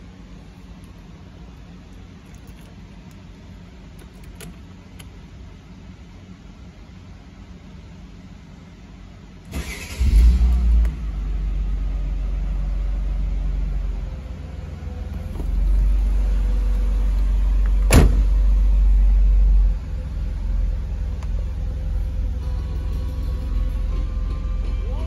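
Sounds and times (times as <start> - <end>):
car engine idling: 9.6 - 25.0.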